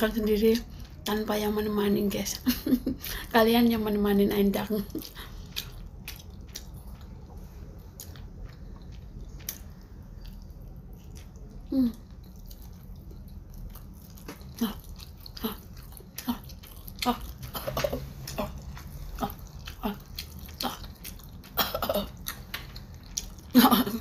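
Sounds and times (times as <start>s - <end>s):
wet mouth clicks and chewing: 4.8s - 23.6s.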